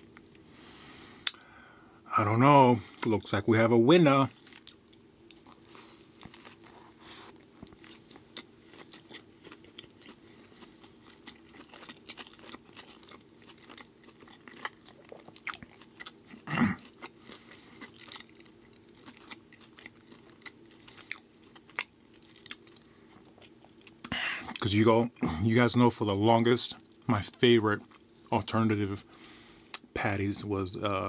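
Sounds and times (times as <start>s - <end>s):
faint low hum: 0.0s - 31.0s
chewing a burger: 4.3s - 25.4s.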